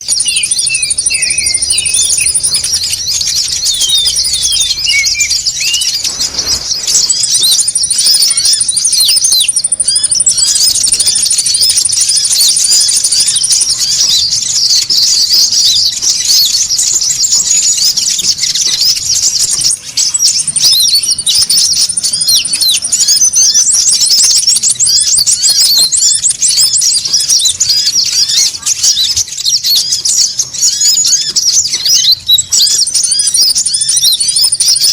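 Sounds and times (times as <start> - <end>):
birds chirping: 0.0 - 34.9
fast high bird trill: 0.0 - 34.9.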